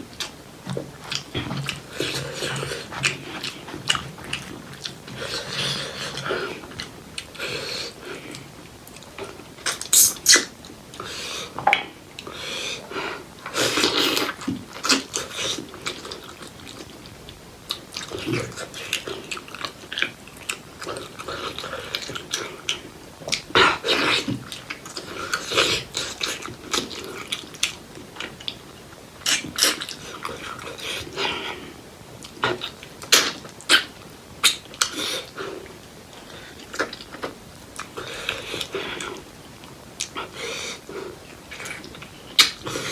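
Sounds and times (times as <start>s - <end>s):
wet chewing and smacking: 0.1s - 7.3s, 13.7s - 31.6s, 32.2s - 42.9s
sharp mouth clicks: 9.7s - 10.5s.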